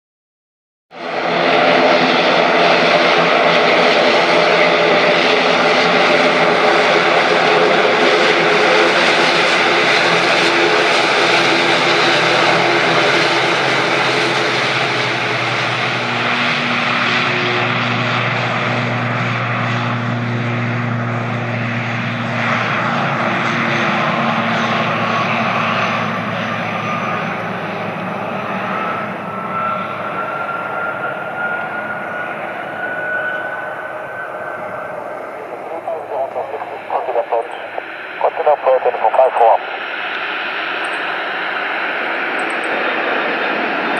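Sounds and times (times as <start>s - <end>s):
airplane engines roaring: 0.9s - 43.9s
rising whine: 27.7s - 43.9s.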